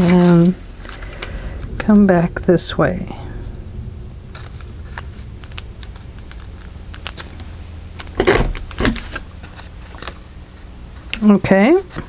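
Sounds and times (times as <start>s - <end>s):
steady low hum: 0.0s - 12.0s
paper rustling: 5.4s - 10.3s.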